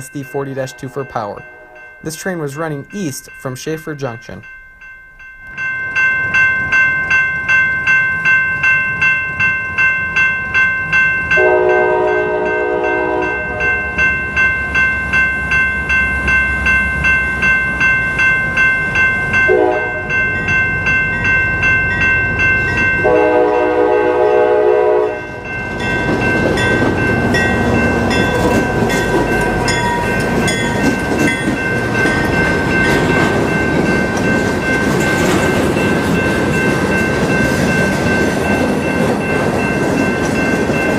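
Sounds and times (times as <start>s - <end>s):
locomotive bell ringing: 0.0s - 40.9s
locomotive horn blasts: 11.4s - 13.8s, 19.5s - 20.1s, 23.0s - 25.4s
train wheels rolling on rails: 25.2s - 40.9s.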